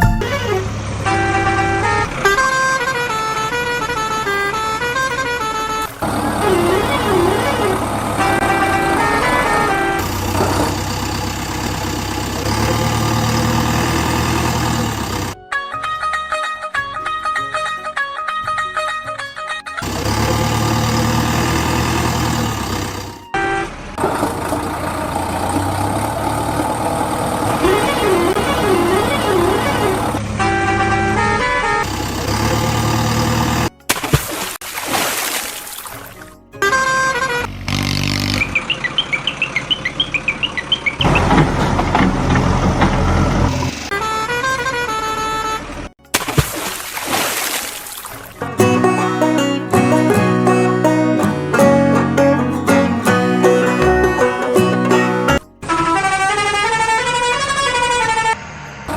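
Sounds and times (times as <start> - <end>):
short beep: 0.0 - 0.6
horn-like tone melodies: 0.0 - 10.8, 27.6 - 31.9, 48.4 - 58.3
tractor engine running: 0.0 - 15.4, 19.8 - 33.9, 36.7 - 44.9, 48.4 - 58.9
rapid chirping beeps: 38.4 - 41.0.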